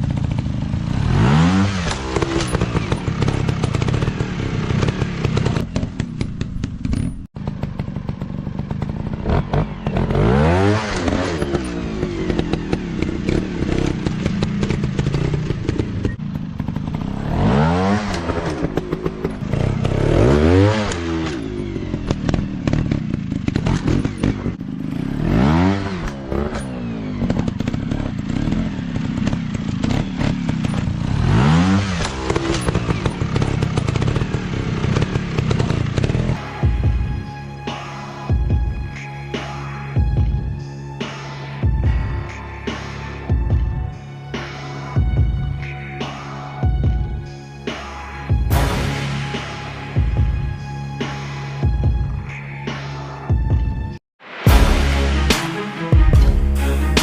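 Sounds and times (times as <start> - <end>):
engine clatter: 0.0 - 36.9
dirt bike engine revving: 0.0 - 53.0.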